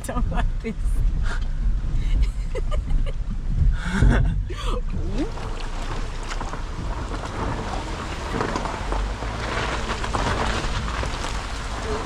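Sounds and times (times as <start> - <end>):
car low rumble: 0.0 - 12.0
tyres crunching over gravel: 5.2 - 12.0.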